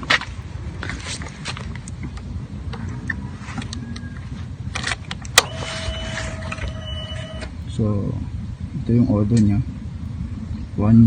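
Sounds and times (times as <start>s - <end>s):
motorcycle engine rumbling: 0.0s - 11.0s
faint steady high tone: 2.2s - 8.3s.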